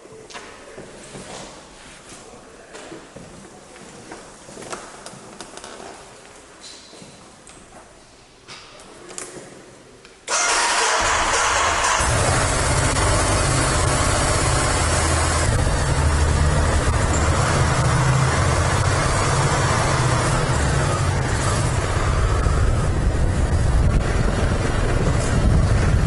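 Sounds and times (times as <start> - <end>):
road and wind noise: 11.0 - 26.0
vehicle low rumble: 11.0 - 26.0.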